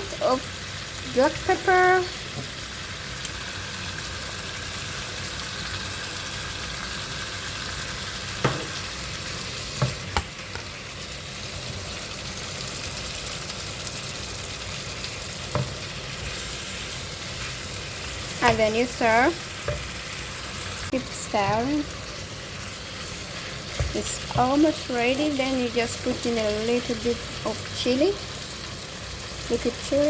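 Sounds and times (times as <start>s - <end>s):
food sizzling in a frying pan: 0.0s - 30.0s
spoon knocking against pan: 8.4s - 8.7s, 15.5s - 15.8s.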